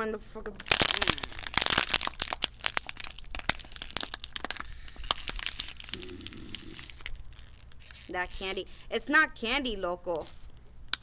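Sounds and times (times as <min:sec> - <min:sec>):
plastic wrapper crinkling and tearing: 0:00.6 - 0:09.0.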